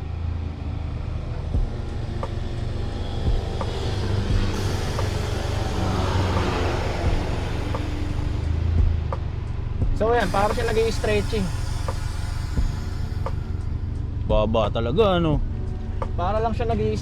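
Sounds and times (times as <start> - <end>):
car engine idling: 0.0 - 17.0
air hissing from suspension bags: 1.7 - 14.3.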